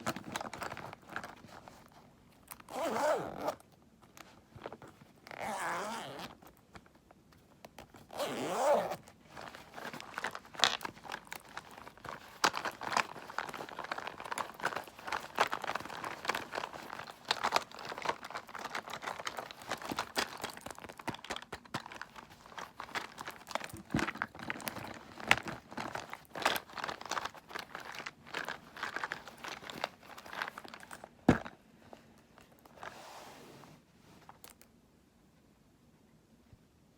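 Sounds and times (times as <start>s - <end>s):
packaging crinkling and crunching: 0.0s - 2.7s, 8.8s - 31.6s.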